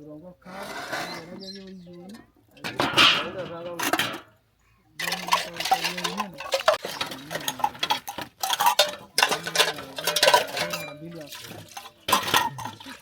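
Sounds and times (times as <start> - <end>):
person talking: 0.0 - 4.2, 4.9 - 8.0, 8.8 - 13.0
dishes and cutlery clattering: 2.1 - 4.4, 5.0 - 13.0.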